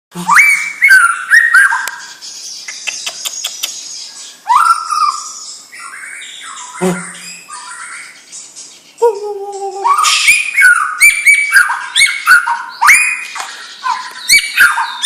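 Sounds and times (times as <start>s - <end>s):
bird whistling and warbling: 0.2s - 15.0s
bird sharp clicks and chatter: 1.5s - 4.0s, 8.4s - 15.0s.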